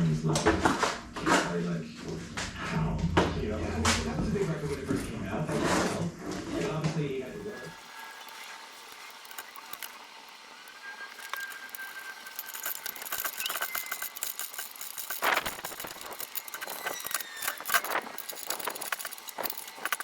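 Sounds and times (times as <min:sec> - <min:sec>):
hard objects clattering: 0:11.1 - 0:20.0.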